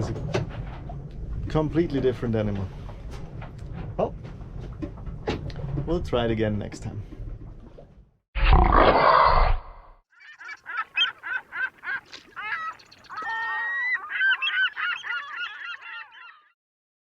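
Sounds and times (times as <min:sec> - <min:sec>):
bird calls: 0:10.1 - 0:16.6.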